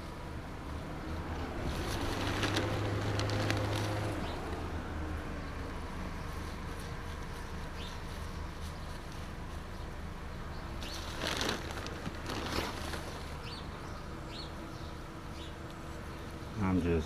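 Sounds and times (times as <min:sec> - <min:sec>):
outdoor background hum: 0:00.0 - 0:17.0
rustling: 0:01.6 - 0:04.5, 0:10.7 - 0:13.6
small birds chirping: 0:01.7 - 0:04.6, 0:05.2 - 0:17.0.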